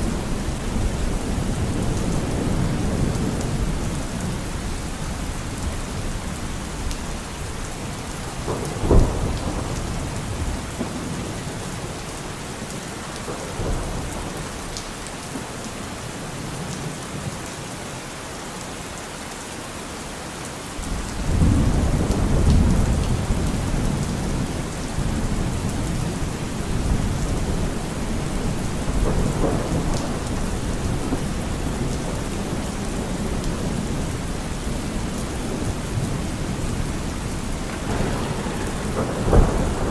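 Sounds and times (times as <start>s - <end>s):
steady rain: 0.0s - 39.9s
thunder rumbling: 8.2s - 15.4s, 20.8s - 39.9s
thunder clap: 8.4s - 12.0s, 20.9s - 39.9s.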